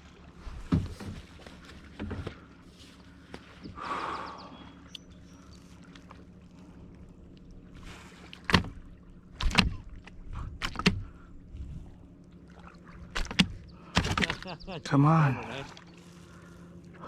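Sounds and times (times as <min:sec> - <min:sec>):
gear knocking on kayak: 0:08.4 - 0:11.1, 0:13.1 - 0:14.7.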